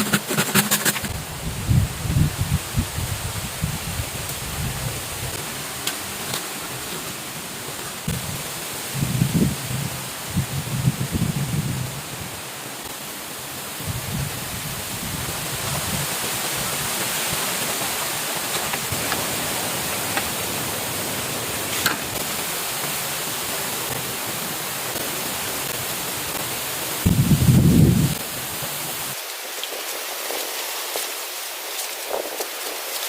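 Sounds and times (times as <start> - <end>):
heavy rain hissing: 0.0 - 33.0.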